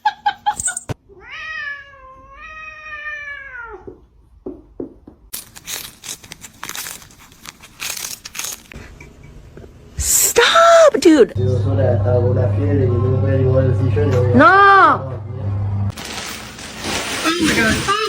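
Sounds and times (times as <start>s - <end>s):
cat meowing: 1.1s - 4.0s
scratchy rustling: 5.4s - 8.8s.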